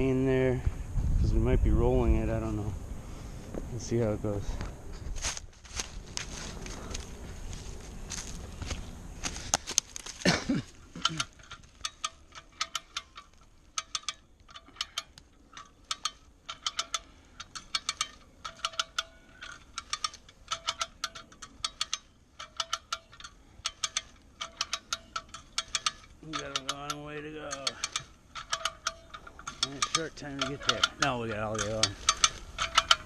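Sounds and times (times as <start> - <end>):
winch pawl clicking: 9.5 - 33.0.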